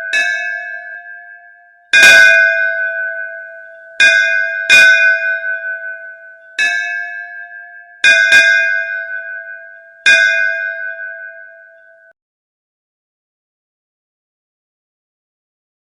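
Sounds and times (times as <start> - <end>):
metal bell ringing: 0.0 - 12.1.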